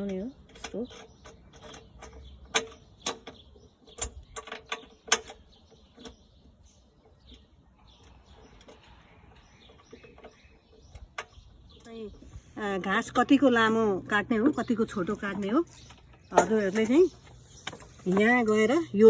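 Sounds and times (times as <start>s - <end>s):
clicks and knocks of parts: 0.0s - 6.2s.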